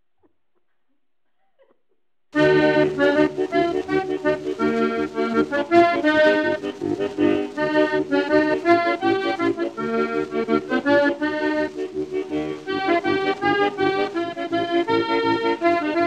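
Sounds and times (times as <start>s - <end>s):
accordion playing bouncy melody: 2.4s - 16.0s.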